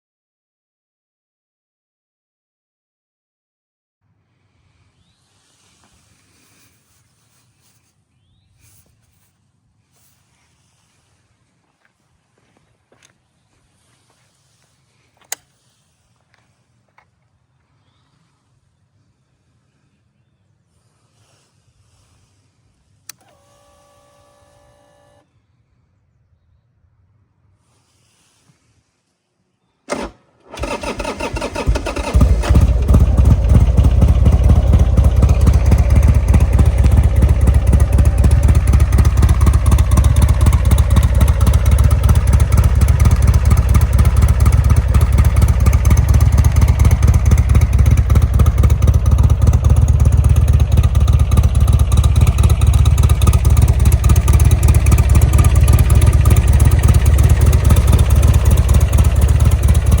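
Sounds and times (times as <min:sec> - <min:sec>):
motorcycle starter cranking: 0:29.9 - 1:00.0
motorcycle engine idling: 0:30.5 - 1:00.0.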